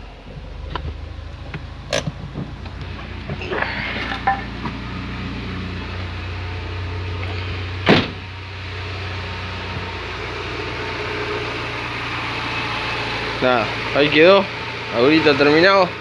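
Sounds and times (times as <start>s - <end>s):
car engine idling: 0.0s - 16.0s
loud thump: 7.8s - 8.2s.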